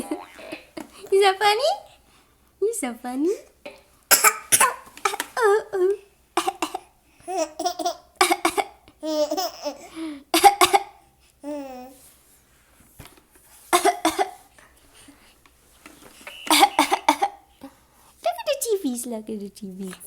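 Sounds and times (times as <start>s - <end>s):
baby laughing: 0.0s - 1.0s, 6.4s - 10.8s, 11.4s - 11.9s, 16.4s - 17.4s.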